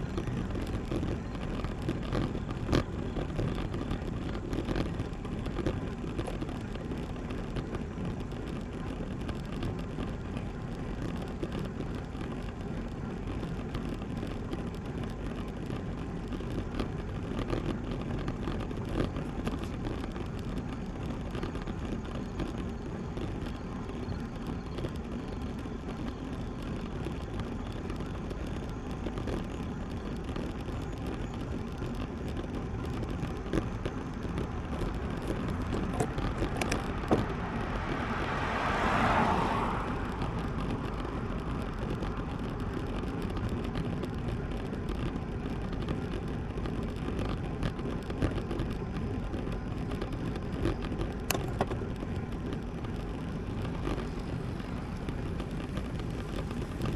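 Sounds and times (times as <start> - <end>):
wind and road noise: 0.0 - 56.9
car passing: 34.6 - 42.6.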